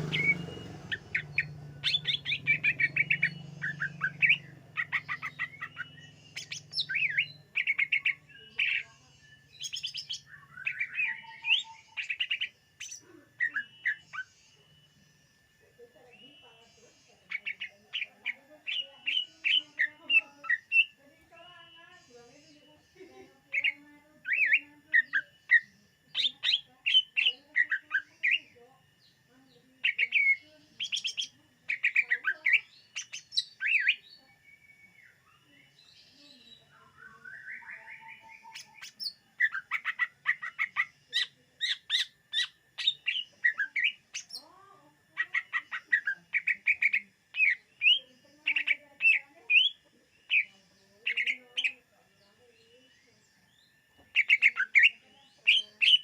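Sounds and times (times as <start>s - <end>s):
bird singing chirps and whistles: 0.0s - 14.9s, 23.6s - 28.6s, 29.8s - 44.5s, 45.1s - 50.5s, 53.4s - 56.0s.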